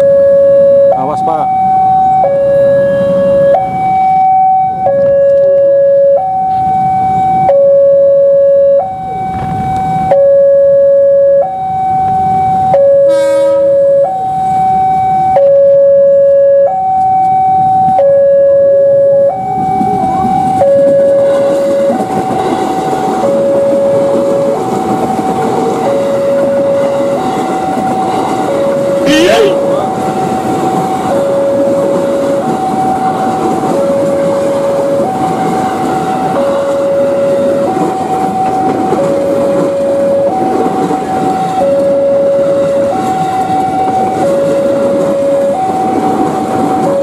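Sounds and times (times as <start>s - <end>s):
level-crossing alarm two tones: 0.0s - 22.5s, 23.1s - 47.0s
electric train passing rumble: 0.0s - 47.0s
train horn blast: 2.4s - 3.7s, 12.9s - 14.2s.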